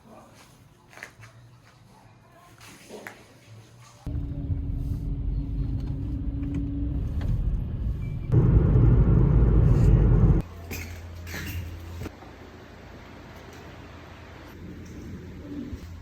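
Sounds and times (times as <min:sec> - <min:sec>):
low hum: 0:04.1 - 0:10.4
low vehicle rumble: 0:04.1 - 0:10.5.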